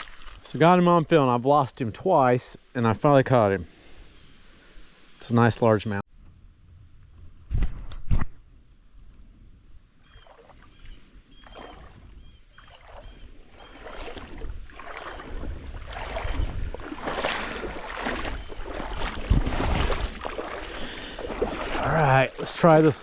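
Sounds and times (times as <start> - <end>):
river water splashing: 0.0 - 1.0, 10.1 - 23.0.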